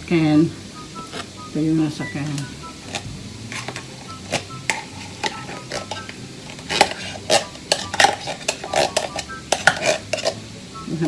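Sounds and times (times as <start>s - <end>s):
light sizzle of frying: 0.0s - 11.0s
utensil scraping a frying pan: 2.8s - 10.4s.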